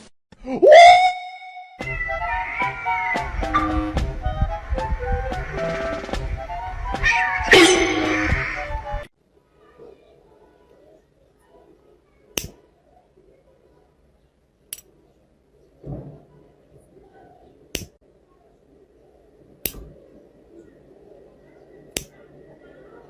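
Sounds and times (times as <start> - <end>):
sharp short snaps: 12.4 - 12.6, 17.7 - 18.0, 19.6 - 19.9, 21.9 - 22.2.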